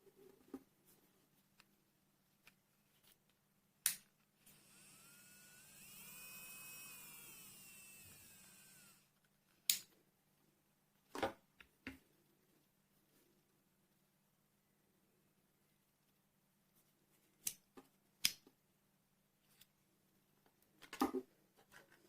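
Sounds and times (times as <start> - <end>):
electric nail drill whining: 4.4 - 9.1.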